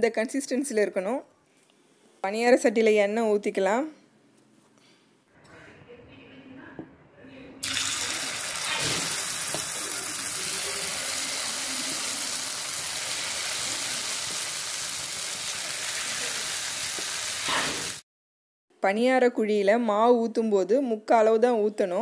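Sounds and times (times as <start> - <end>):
hot oil sizzling in a pan: 7.6 - 18.0.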